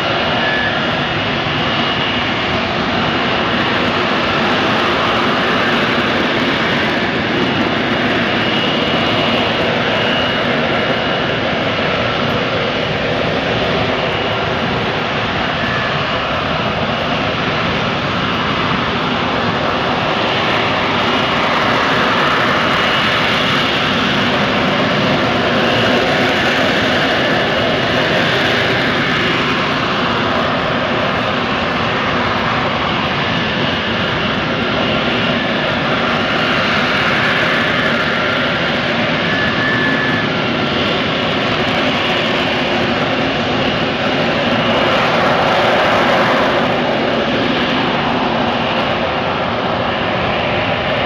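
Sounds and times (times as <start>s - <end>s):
jet engine roaring: 0.0s - 51.0s.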